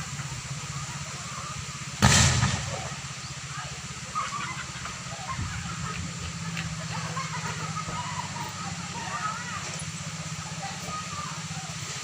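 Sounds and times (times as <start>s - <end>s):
wind: 0.0s - 12.0s
sharp bang from power lines: 2.0s - 3.0s.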